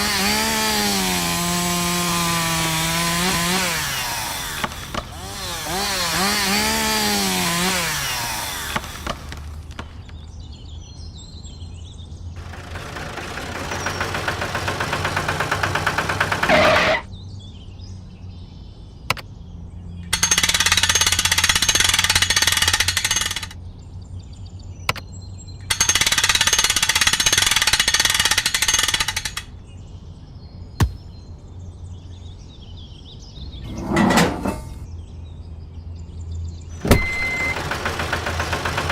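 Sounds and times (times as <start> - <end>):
small power tool running: 0.0 - 10.0, 12.4 - 17.1, 20.2 - 23.6, 36.8 - 38.9
sharp clicks: 19.1 - 19.3.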